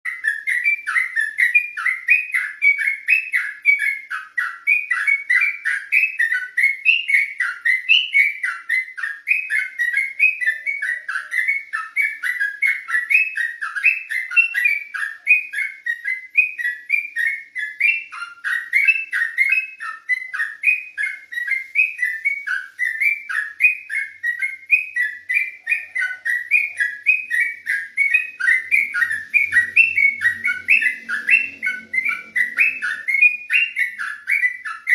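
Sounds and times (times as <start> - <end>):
bulbul singing warbling notes: 25.4 - 34.9.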